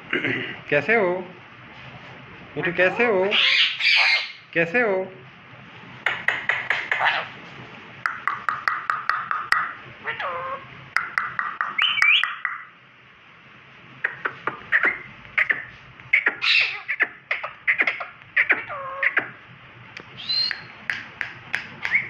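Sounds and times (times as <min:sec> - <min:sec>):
parakeet clicks and squawks: 0:06.0 - 0:07.3, 0:14.0 - 0:19.4, 0:20.0 - 0:22.0.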